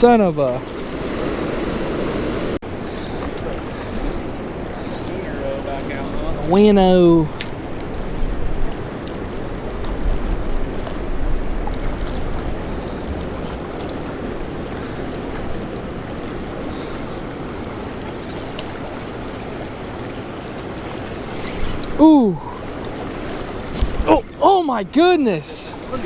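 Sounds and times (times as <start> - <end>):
river rushing: 0.0 - 26.0
wind on microphone: 5.8 - 17.8.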